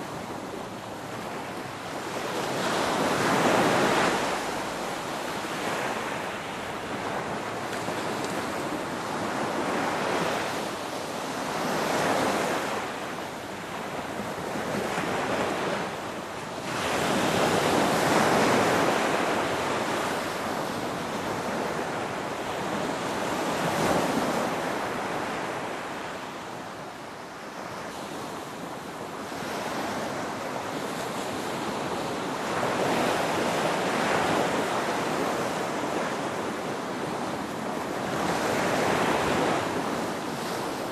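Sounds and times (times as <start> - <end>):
ocean waves breaking on shore: 0.0 - 40.9.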